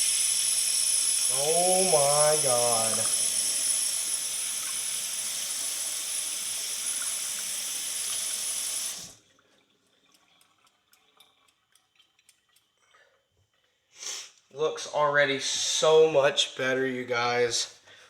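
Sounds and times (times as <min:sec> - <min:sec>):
tap water running into basin: 0:00.0 - 0:13.7
water dripping: 0:00.1 - 0:13.8.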